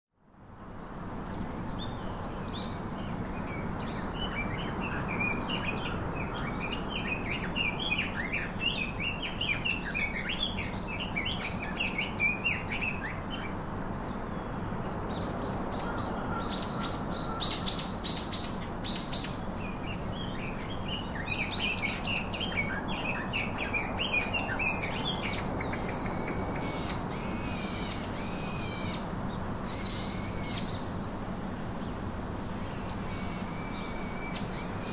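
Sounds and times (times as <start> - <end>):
small birds chirping: 1.2 - 31.0, 31.7 - 34.9
bird calling: 15.8 - 19.4.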